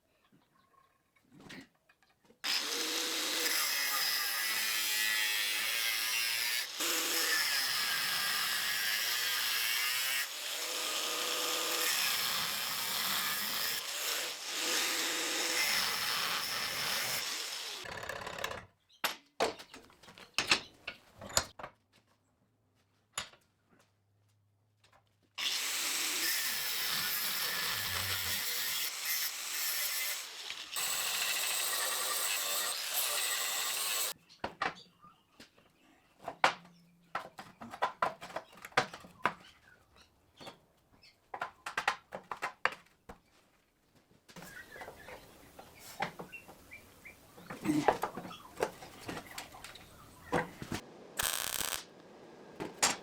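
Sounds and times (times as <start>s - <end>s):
power tool working on steel: 2.5s - 18.3s, 51.2s - 52.0s.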